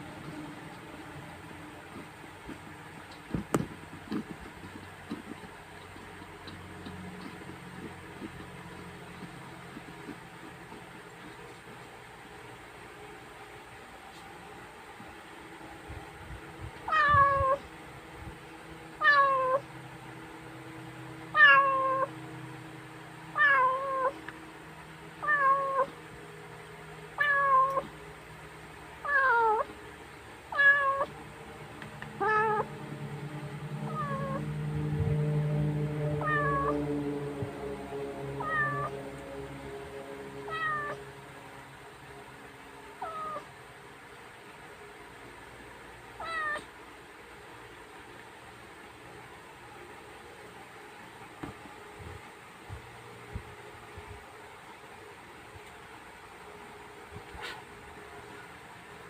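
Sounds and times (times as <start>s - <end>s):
low steady rumble: 0.0s - 59.0s
cat meowing: 16.9s - 17.6s, 19.0s - 19.7s, 21.3s - 22.1s, 23.3s - 24.2s, 25.2s - 26.0s, 27.2s - 27.9s, 29.0s - 29.7s, 30.5s - 31.1s, 32.2s - 32.7s, 33.8s - 34.4s, 36.2s - 36.9s, 38.4s - 39.0s, 40.5s - 41.0s, 43.0s - 43.5s, 46.2s - 46.7s.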